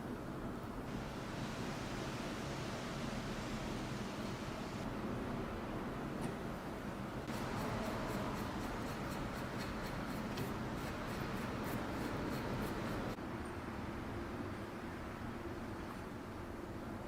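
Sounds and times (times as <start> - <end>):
hand scrubbing rusty metal: 7.3 - 13.2.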